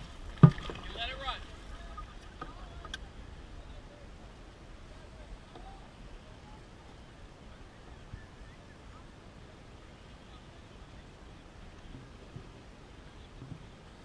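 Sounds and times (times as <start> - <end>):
distant indistinct voices: 0.8 - 14.0.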